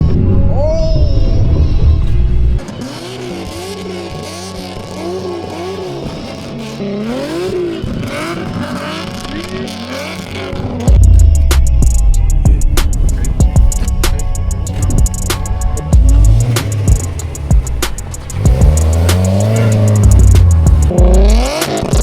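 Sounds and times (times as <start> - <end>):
background music: 0.0 - 22.0
car engine revving: 0.0 - 22.0.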